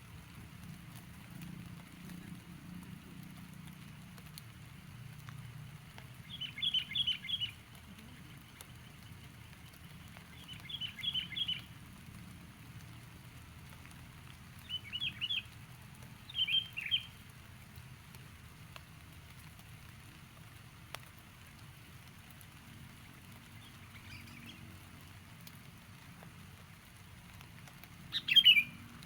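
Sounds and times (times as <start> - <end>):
low background noise: 0.0 - 29.0
bulbul chattering calls: 28.1 - 28.8.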